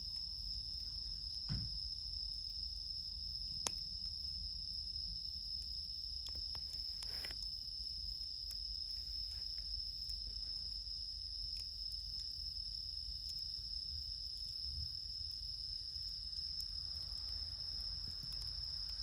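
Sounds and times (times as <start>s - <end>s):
crickets trilling: 0.0s - 19.0s
campfire crackling: 0.1s - 19.0s.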